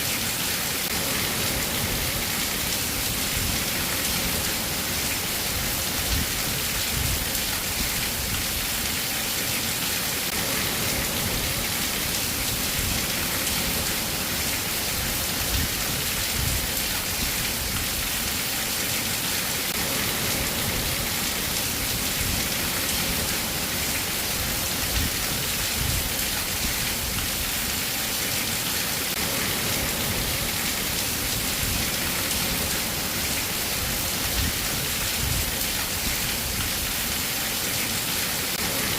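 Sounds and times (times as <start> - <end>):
steady rainfall hiss: 0.0 - 38.9.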